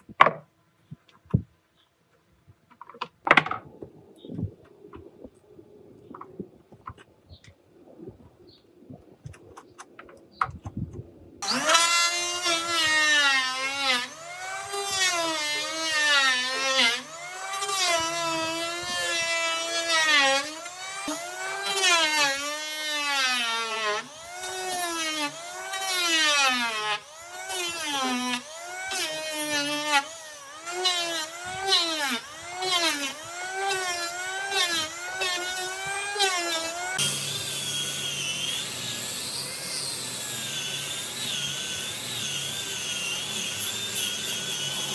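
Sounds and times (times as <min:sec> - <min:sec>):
power tool cutting wood: 0:11.4 - 0:44.9.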